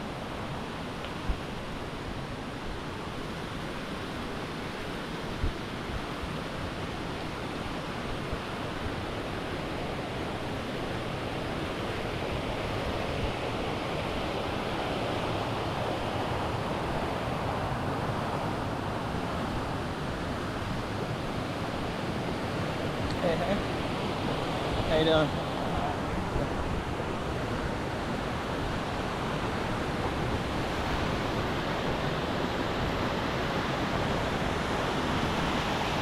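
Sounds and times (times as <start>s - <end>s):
waterfall rushing: 19.5s - 36.0s.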